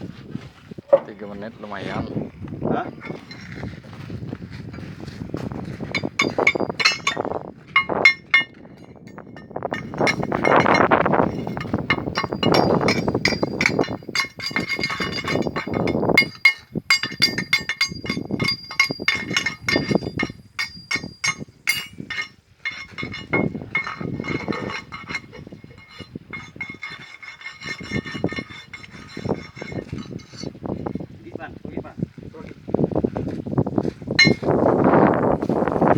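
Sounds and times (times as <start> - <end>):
hammer clanking on steel: 5.9 - 30.5, 34.2 - 34.5.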